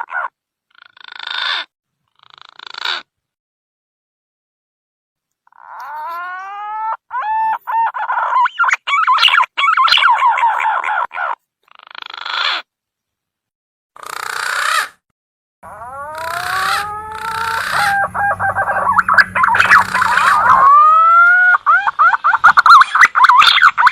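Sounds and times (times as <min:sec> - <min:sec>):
whistled bird lure call: 0:16.2 - 0:20.8.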